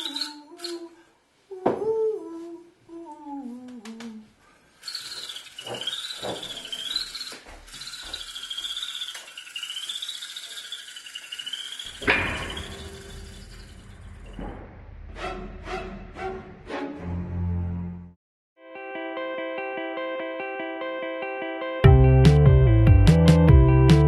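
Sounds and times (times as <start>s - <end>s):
high warbling whistle-like tone: 0.0s - 0.9s, 4.9s - 14.4s.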